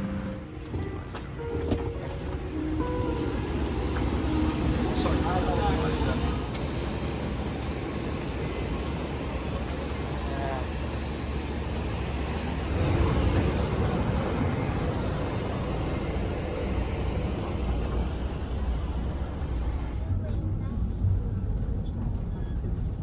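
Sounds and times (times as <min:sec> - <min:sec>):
vehicle interior rumble and hiss: 0:12.6 - 0:20.1.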